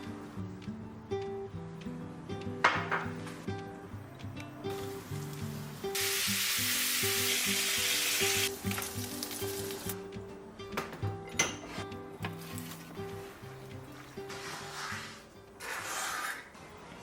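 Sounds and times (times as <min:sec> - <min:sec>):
background music: 0:00.0 - 0:17.0
food sizzling in frying pan: 0:04.8 - 0:10.0.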